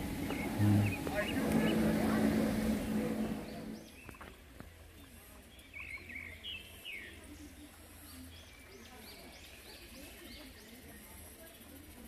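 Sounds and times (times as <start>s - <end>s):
birds chirping: 0.0s - 11.1s
murmur of voices: 0.0s - 12.0s.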